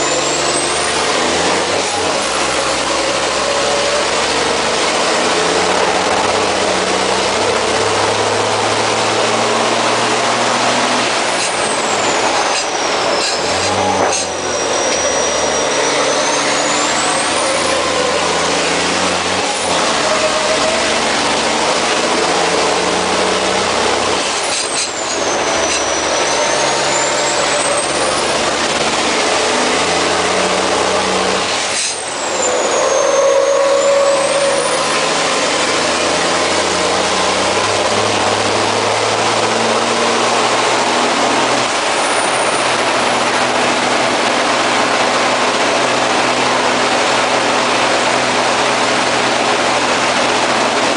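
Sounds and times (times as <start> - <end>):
diesel truck engine under load: 0.0 - 50.9
high whistle: 31.9 - 34.9.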